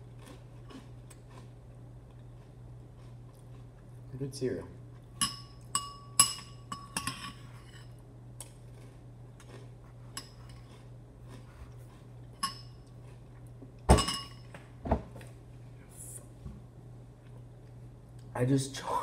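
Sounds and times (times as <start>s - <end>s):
metal spoon clinking on bowl: 5.2s - 7.9s, 12.4s - 12.7s, 13.9s - 14.4s.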